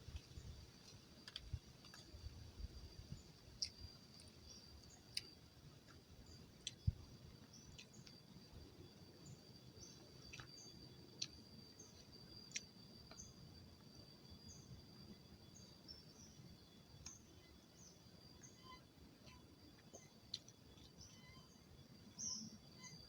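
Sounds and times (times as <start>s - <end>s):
insect drone: 0.0s - 23.0s
bird chirps: 17.1s - 23.0s.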